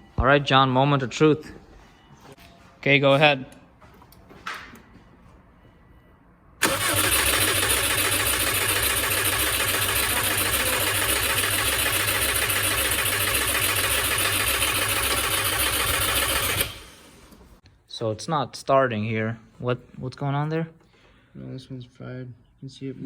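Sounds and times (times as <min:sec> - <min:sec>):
engine cranked by starter: 0:06.6 - 0:17.6.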